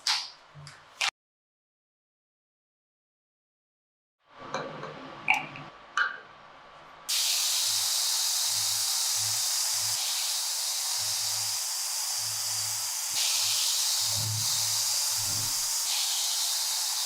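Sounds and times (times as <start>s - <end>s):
loud spraying hiss: 7.1s - 17.0s.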